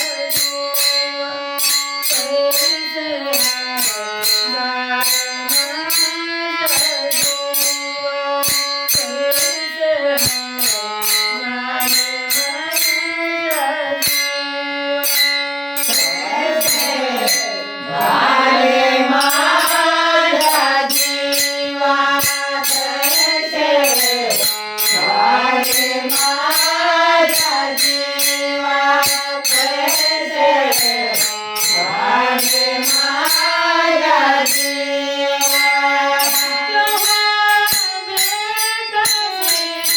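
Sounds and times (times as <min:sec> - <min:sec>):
woman singing: 0:02.1 - 0:14.3, 0:15.9 - 0:39.9
clicking percussion beat: 0:15.8 - 0:34.8.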